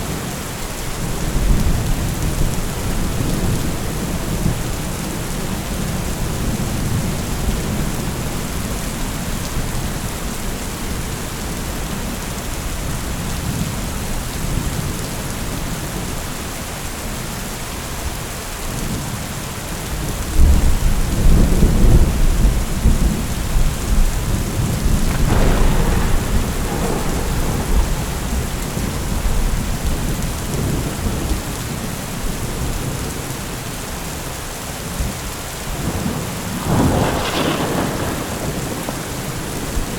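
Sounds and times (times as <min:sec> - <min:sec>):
steady rain: 0:00.0 - 0:39.9
rolling thunder: 0:20.4 - 0:33.0, 0:35.8 - 0:39.9
thunder crack: 0:22.8 - 0:31.3, 0:35.9 - 0:39.9.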